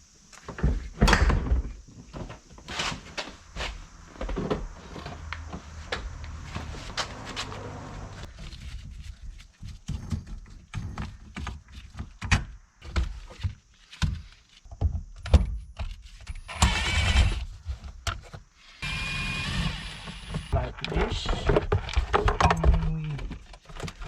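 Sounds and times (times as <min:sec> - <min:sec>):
small electric motor whirring: 0:16.5 - 0:17.4, 0:18.8 - 0:20.5.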